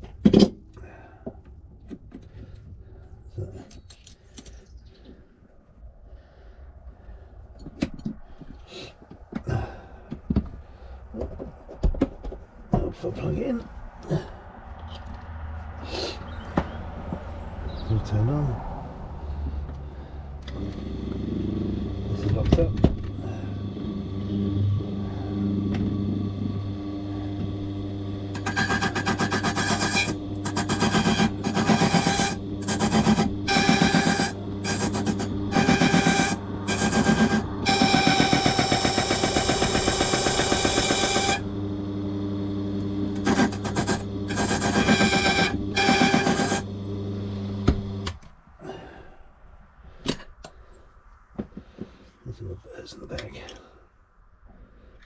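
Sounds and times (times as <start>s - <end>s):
key-cutting machine humming: 23.5s - 48.0s
cutter rasping into key blank: 28.3s - 41.4s, 43.1s - 46.6s.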